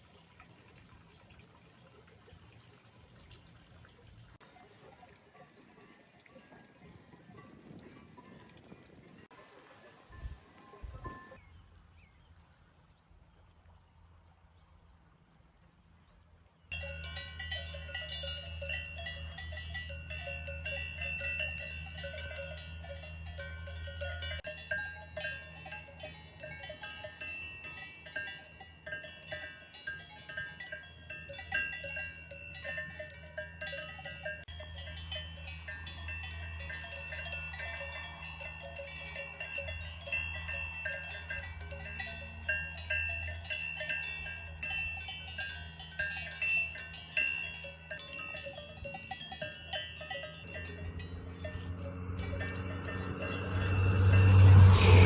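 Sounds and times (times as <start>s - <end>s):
cowbells clanking: 5.3s - 9.2s, 9.9s - 11.4s, 16.7s - 55.0s.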